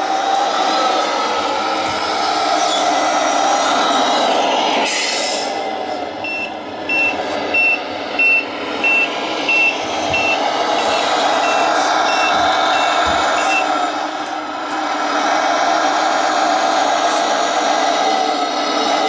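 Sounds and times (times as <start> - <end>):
model truck running: 0.0 - 19.0
high reversing beeps: 6.2 - 13.7.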